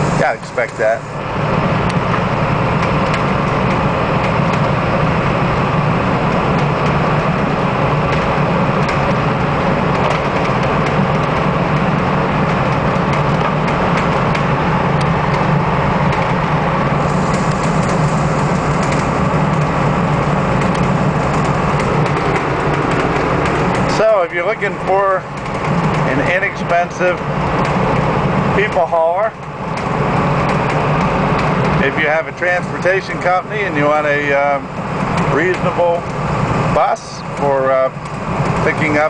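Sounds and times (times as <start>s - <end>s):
diesel engine drone: 0.0s - 39.0s
road noise: 0.0s - 39.0s.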